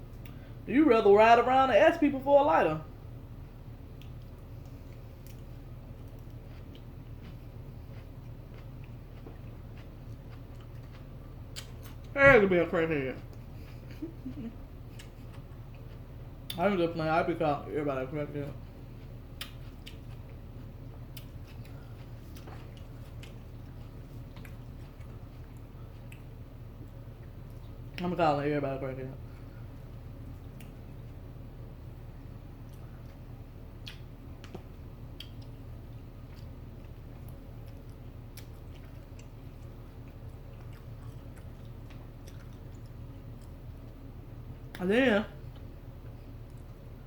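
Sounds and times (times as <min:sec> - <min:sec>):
steady low hum: 0:00.0 - 0:47.0
chewing food: 0:03.8 - 0:12.2, 0:13.1 - 0:16.7, 0:18.4 - 0:28.0, 0:29.2 - 0:44.8, 0:45.4 - 0:47.0
wet clicks and smacks: 0:30.4 - 0:30.8, 0:33.8 - 0:35.6.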